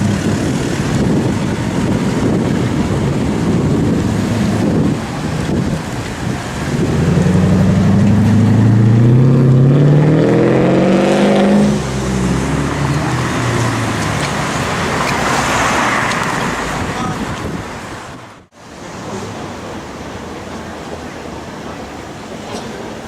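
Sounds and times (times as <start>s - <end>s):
car engine accelerating hard: 0.0s - 17.2s
road noise: 0.0s - 23.0s.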